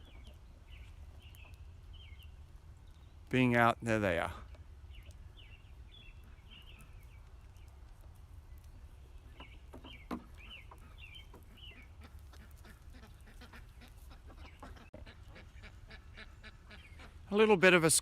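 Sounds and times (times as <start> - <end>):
high chirping bird calls: 4.9 - 7.8, 8.5 - 12.1.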